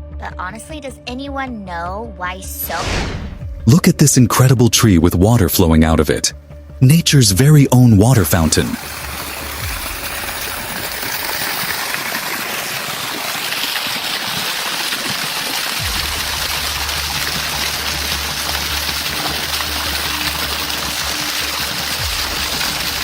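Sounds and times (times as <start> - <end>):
water gushing: 8.0 - 23.0.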